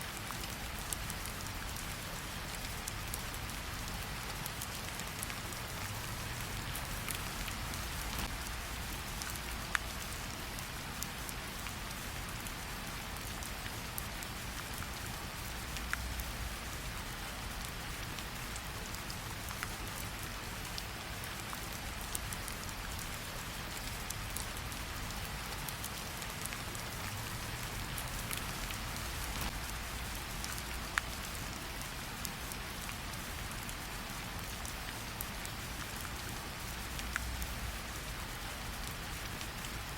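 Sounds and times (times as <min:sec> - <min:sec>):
steady rain hissing: 0:00.0 - 0:39.9
wood fire crackling: 0:25.8 - 0:31.3.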